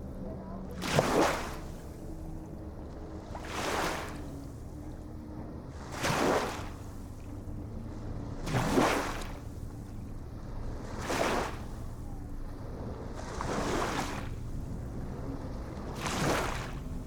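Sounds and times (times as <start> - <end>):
low rumble of water: 0.0 - 17.0
small waves washing in: 3.0 - 4.7, 8.2 - 17.0.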